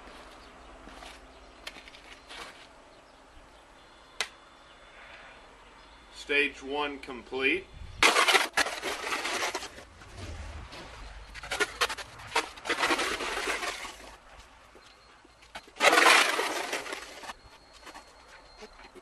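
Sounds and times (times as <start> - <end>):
ice scraper scraping ice: 8.0 - 9.8, 11.4 - 14.2.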